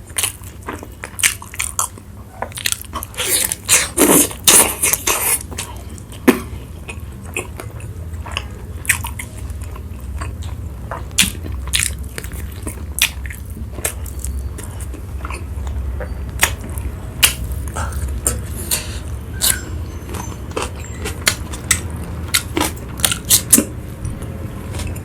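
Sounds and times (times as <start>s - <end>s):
low steady hum: 0.0s - 25.0s
person chewing food: 0.0s - 25.0s.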